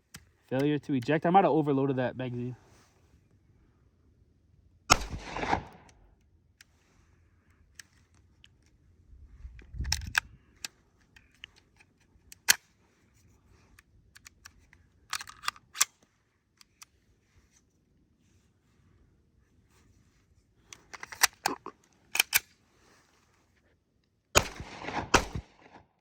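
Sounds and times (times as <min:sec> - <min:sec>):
pistol metallic clicks: 0:22.1 - 0:22.5, 0:24.4 - 0:25.8.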